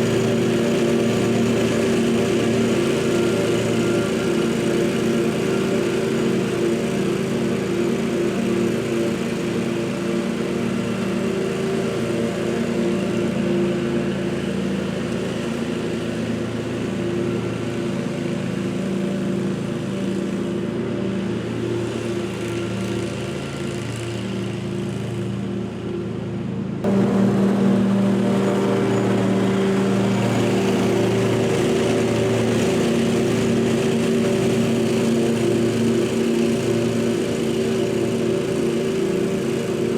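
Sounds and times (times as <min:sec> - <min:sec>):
lawn equipment engine droning: 0:00.0 - 0:39.9.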